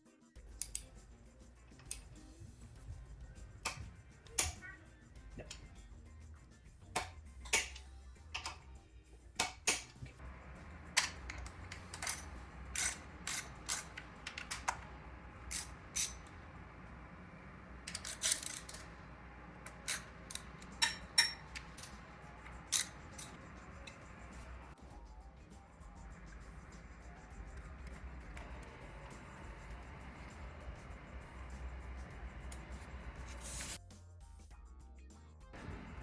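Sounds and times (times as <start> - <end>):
low steady hum: 0.5 - 33.8
metallic clicks of hand tools: 0.6 - 1.0, 7.0 - 8.7, 9.4 - 10.1, 11.0 - 16.3, 19.6 - 24.1.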